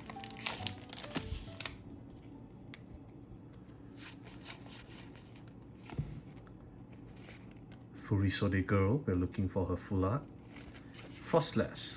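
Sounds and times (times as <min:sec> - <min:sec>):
cards rustling: 0:00.0 - 0:07.8.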